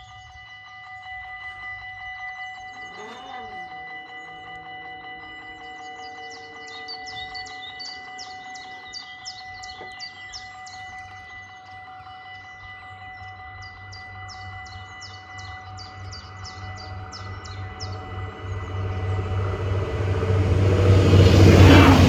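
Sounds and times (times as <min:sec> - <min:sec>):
birds chirping: 0:01.8 - 0:22.0
diesel railcar rumble: 0:15.8 - 0:22.0.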